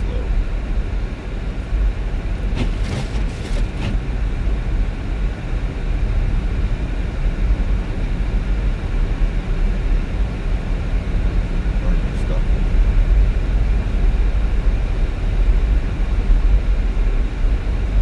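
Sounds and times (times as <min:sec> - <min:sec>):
car driving rumble: 0:00.0 - 0:18.0.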